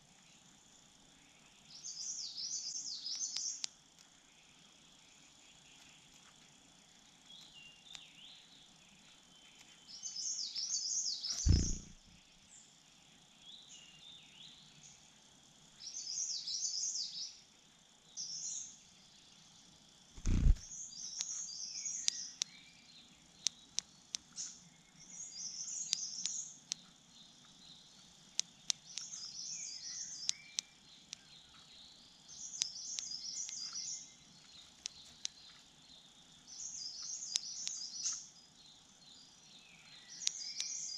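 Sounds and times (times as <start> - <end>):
songbird warbling: 10.4 - 12.1
sharp clicks: 11.4 - 12.0, 20.2 - 20.6
dull thumps: 11.5 - 12.0.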